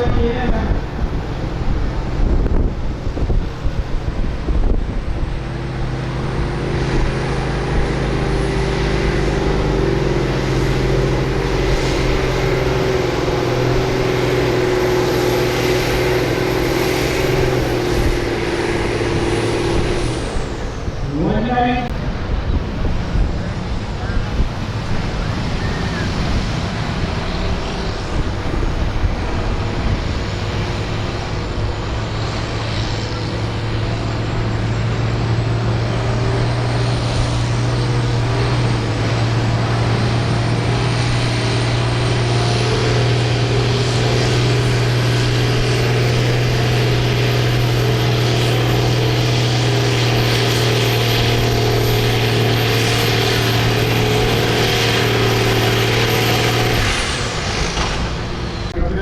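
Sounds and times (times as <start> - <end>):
tractor diesel engine running hard: 0.0 - 59.0.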